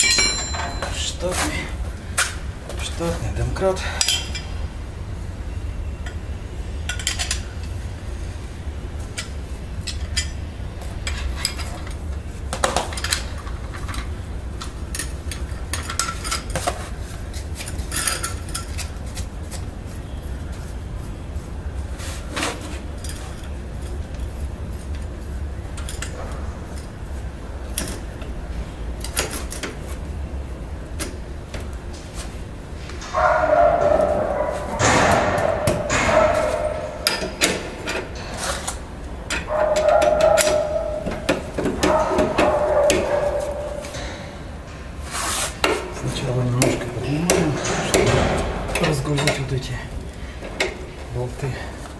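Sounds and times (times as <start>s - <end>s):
metallic clinks of car jack: 0.0s - 1.3s, 17.6s - 18.9s, 39.3s - 44.3s.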